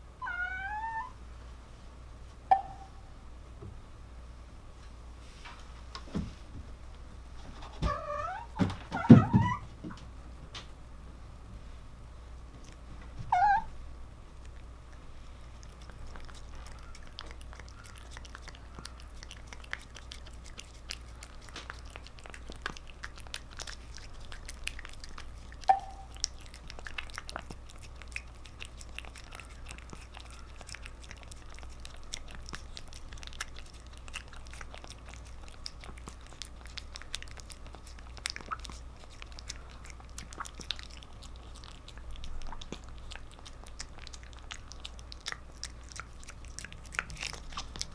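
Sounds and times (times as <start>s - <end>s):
cat crying: 0.2s - 1.2s, 7.9s - 9.6s, 13.3s - 13.7s
cat licking and chewing: 12.4s - 47.9s.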